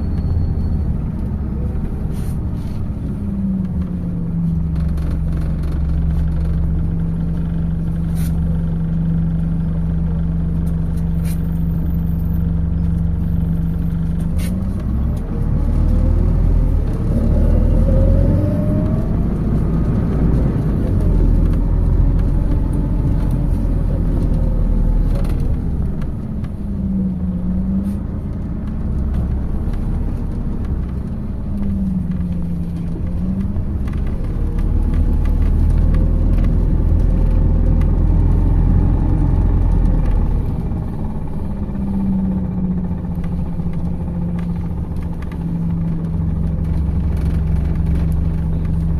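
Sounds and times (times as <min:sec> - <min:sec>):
bus engine running: 0:00.0 - 0:48.9
road rumble: 0:00.0 - 0:48.9.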